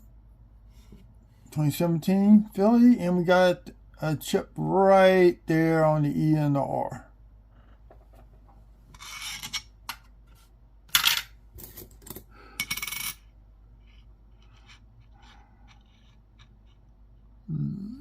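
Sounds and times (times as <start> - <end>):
coins scraping and clinking: 9.0 - 9.7, 11.0 - 16.8.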